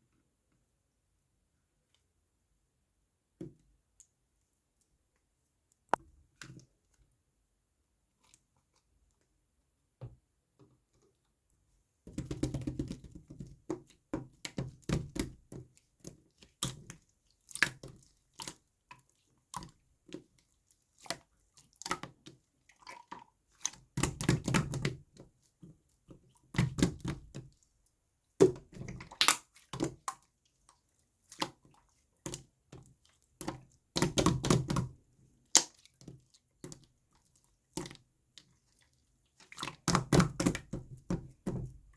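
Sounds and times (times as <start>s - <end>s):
slime squishing by hand: 12.1s - 41.9s.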